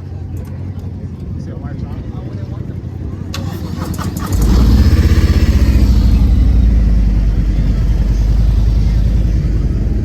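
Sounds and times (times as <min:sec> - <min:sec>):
car engine starting and idling: 0:03.1 - 0:10.0.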